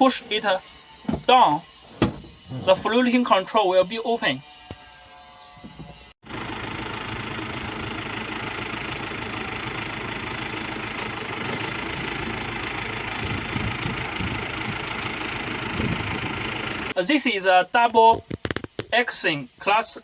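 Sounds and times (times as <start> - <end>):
diesel engine idling: 6.2 - 17.0.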